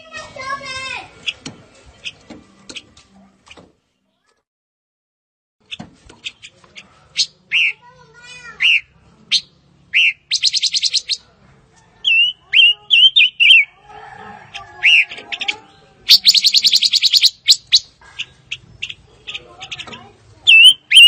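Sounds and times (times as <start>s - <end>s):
bird call notes: 8.6s - 11.2s, 16.1s - 17.9s, 20.5s - 21.0s
bird warbled whistles: 10.0s - 11.2s, 12.1s - 13.7s, 16.1s - 17.9s, 20.5s - 21.0s
bird rattling trills: 16.1s - 17.9s.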